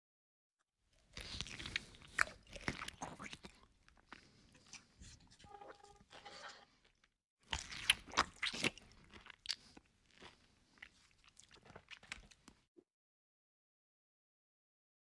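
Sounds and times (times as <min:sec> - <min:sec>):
crunchy chewing: 0:00.9 - 0:12.7.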